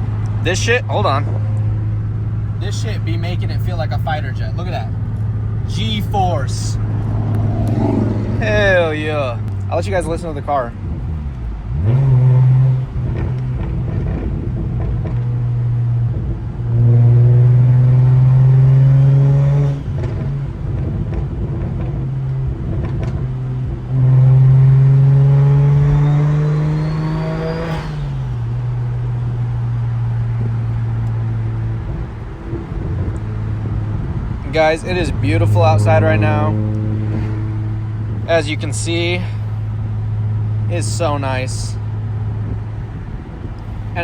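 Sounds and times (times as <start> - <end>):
raspy car engine and exhaust: 0.0 - 44.0
turbo whistle: 25.8 - 28.0.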